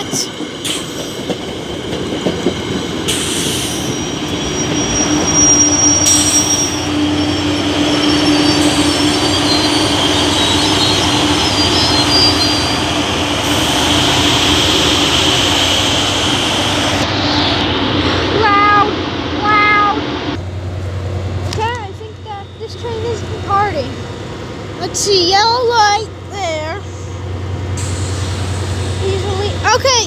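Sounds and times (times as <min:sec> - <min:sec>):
train wheels rumbling on rail: 0:00.0 - 0:19.4, 0:20.0 - 0:30.0
high-pitched wheel squeals: 0:02.6 - 0:17.1.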